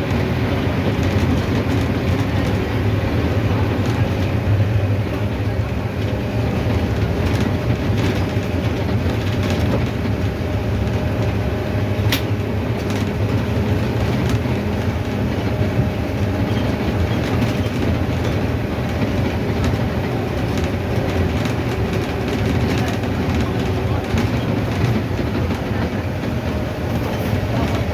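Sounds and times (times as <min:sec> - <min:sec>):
bus diesel engine running: 0:00.0 - 0:27.9
road rumble: 0:00.0 - 0:27.9.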